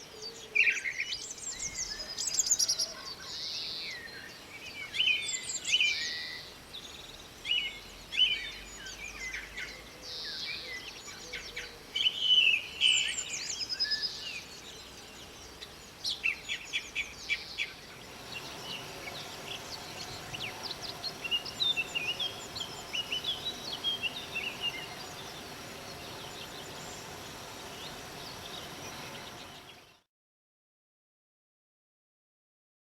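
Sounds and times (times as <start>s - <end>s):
faint bird twittering: 0.0s - 30.0s
blackbird singing: 0.1s - 30.0s
steady low hum: 17.9s - 29.9s.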